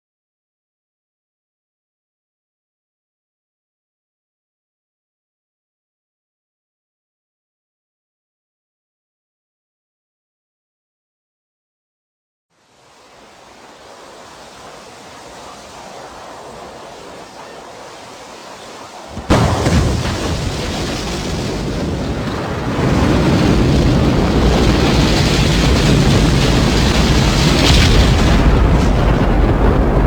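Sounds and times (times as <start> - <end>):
hiss of noise: 12.6 - 19.3.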